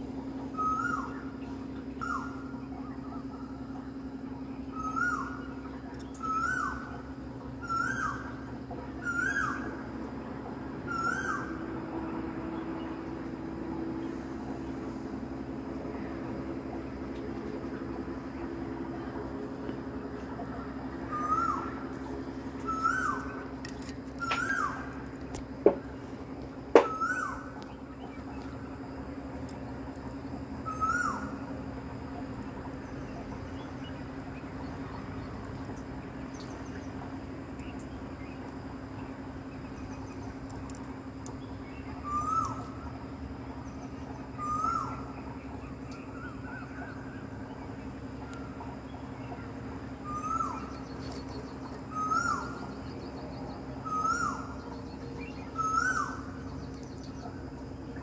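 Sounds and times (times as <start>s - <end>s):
bird calling: 0.0s - 58.0s
steady low hum: 0.0s - 58.0s.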